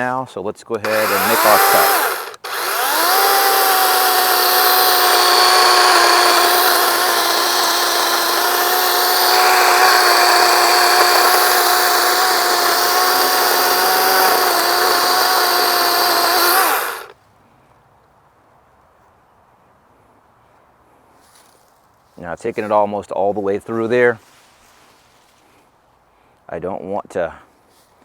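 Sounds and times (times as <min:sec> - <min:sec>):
electric chainsaw cutting wood: 0:00.8 - 0:17.1.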